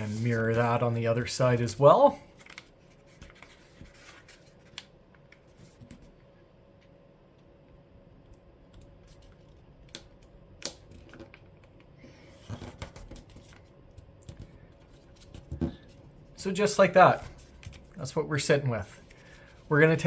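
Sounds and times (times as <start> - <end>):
paper folding and creasing: 0.0 - 0.9, 1.6 - 6.1.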